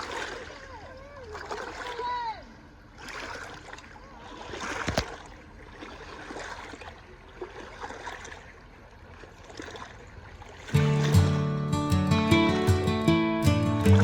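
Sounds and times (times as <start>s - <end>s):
water lapping around boat: 0.0s - 14.0s
sharp splash or knock: 4.4s - 8.5s, 10.6s - 11.4s
music: 10.8s - 14.0s.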